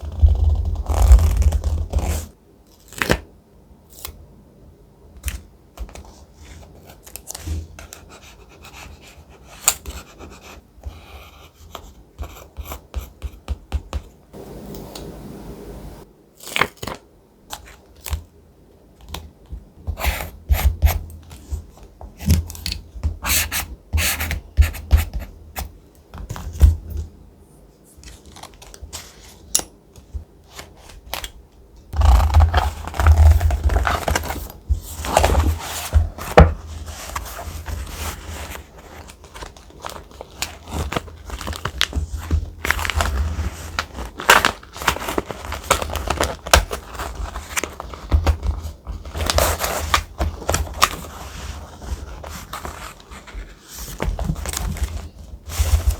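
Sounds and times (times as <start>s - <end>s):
paper rubbing and scraping: 32.0s - 41.7s
paper snipping and crackling: 42.6s - 51.1s.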